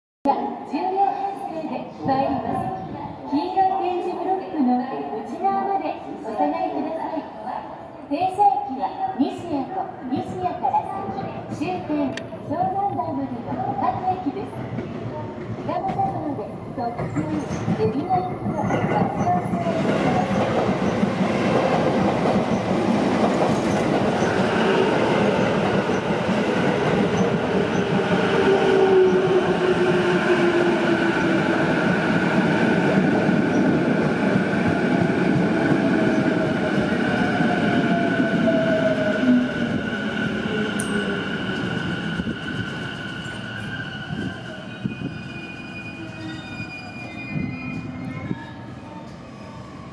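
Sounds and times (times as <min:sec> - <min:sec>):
train wheels rumbling: 0:10.2 - 0:48.3
high brake squeal: 0:42.2 - 0:49.6.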